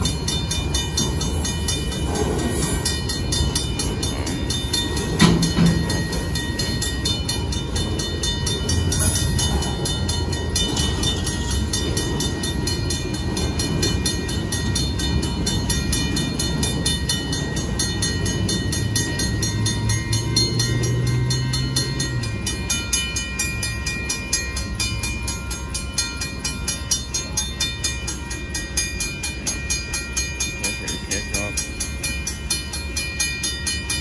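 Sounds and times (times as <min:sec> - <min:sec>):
crossing bell ringing: 0:00.0 - 0:34.0
freight cars rumbling: 0:00.0 - 0:34.0.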